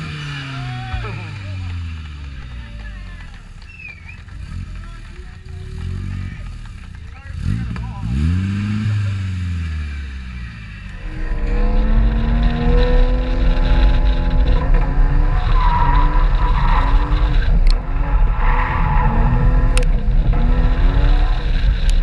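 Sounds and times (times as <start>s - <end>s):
car engine revving: 0.0s - 22.0s
tyres squealing: 0.2s - 5.0s.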